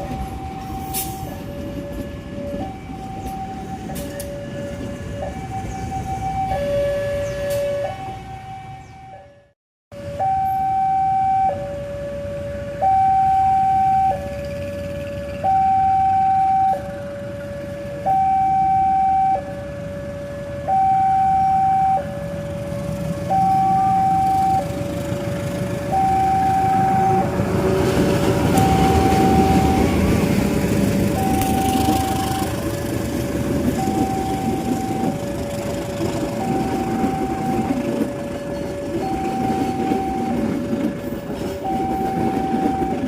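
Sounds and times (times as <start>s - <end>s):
train rumble: 0.0s - 8.5s, 21.5s - 43.0s
level crossing alarm two-tone: 10.2s - 11.7s, 12.8s - 14.2s, 15.4s - 16.8s, 18.1s - 19.5s, 20.6s - 22.1s, 23.3s - 24.7s, 25.9s - 27.3s, 28.5s - 30.0s, 31.2s - 32.6s, 33.8s - 35.4s, 36.3s - 37.8s, 38.9s - 40.5s, 41.6s - 43.0s.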